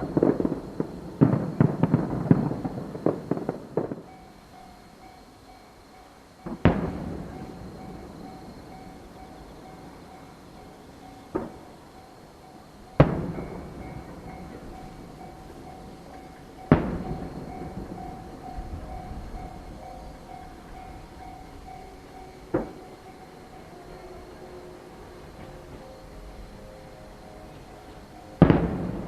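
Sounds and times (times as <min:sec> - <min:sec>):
distant firework bangs with echo: 0:00.0 - 0:04.3, 0:06.4 - 0:09.8, 0:11.2 - 0:11.8, 0:12.9 - 0:21.3, 0:22.5 - 0:23.1, 0:28.4 - 0:29.0.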